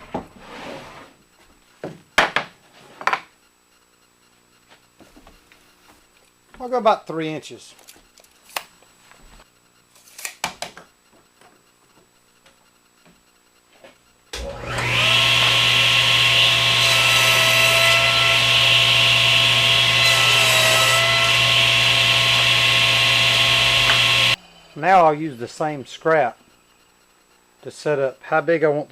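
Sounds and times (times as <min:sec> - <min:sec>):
electric saw cutting wood: 0:14.4 - 0:24.4.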